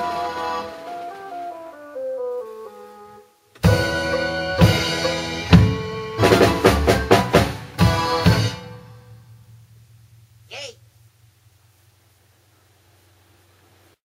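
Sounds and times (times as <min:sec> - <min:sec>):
tango backing track: 0:00.0 - 0:09.0
drum kit playing: 0:03.6 - 0:11.6.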